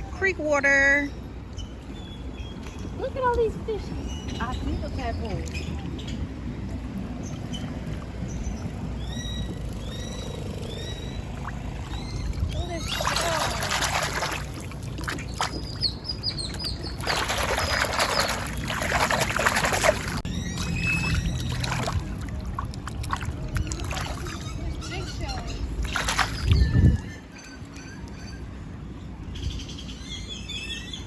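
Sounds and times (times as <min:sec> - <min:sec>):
bird chirping: 0:07.2 - 0:14.3, 0:15.0 - 0:21.9
hands splashing creek water: 0:11.3 - 0:24.7, 0:25.8 - 0:26.9.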